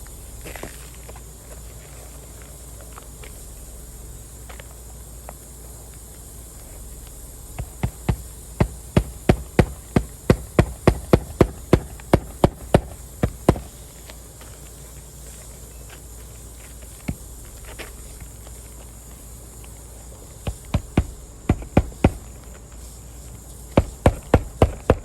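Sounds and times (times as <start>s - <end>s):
hammer striking roofing nails: 7.6s - 13.7s, 20.4s - 22.3s, 23.8s - 25.0s.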